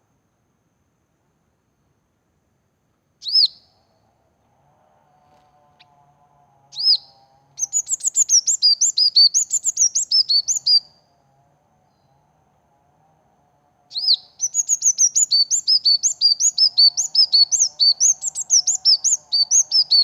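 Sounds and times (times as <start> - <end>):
bird sharp chirps: 3.2 - 3.8, 6.8 - 11.0, 13.9 - 20.0.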